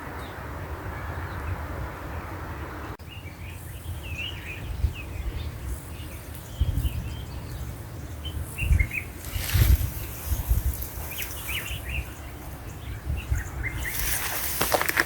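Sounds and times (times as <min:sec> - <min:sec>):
small birds chirping: 0:02.8 - 0:15.0.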